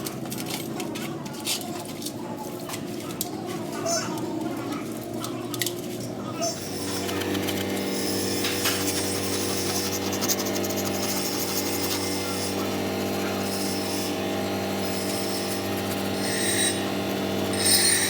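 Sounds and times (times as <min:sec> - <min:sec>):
hissing working noise: 0:04.1 - 0:18.0
power tool motor running: 0:06.6 - 0:18.0.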